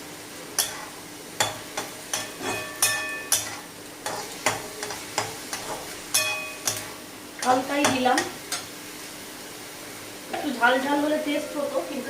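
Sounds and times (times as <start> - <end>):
low sizzle: 0.0 - 12.0
spatula knocking and scraping pan: 0.6 - 8.7.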